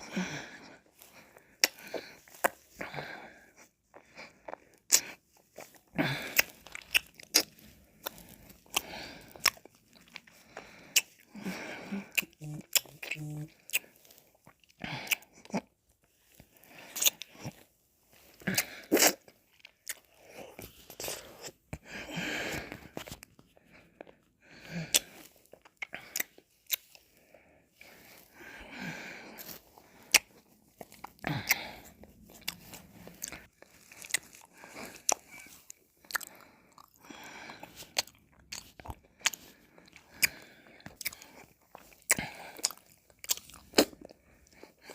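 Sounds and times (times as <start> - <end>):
mouth eating ice cream: 3.5 - 15.7, 18.3 - 21.6
mouth eating sounds: 3.9 - 15.7, 18.4 - 21.6, 29.4 - 44.9.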